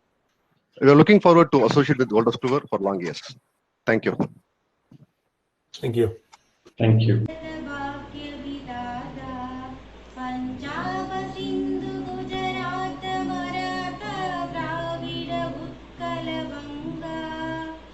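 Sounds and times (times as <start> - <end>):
woman singing slow melody: 7.3 - 17.9.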